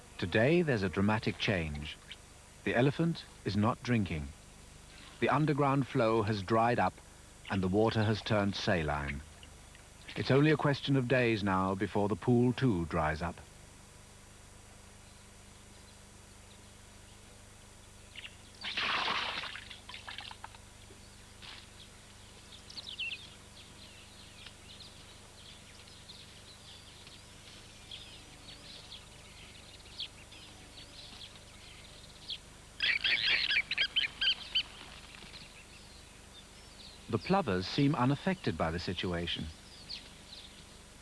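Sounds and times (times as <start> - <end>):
faint outdoor background: 0.0 - 41.0
birds calling harshly: 18.1 - 41.0
short bird chirps: 32.8 - 34.8.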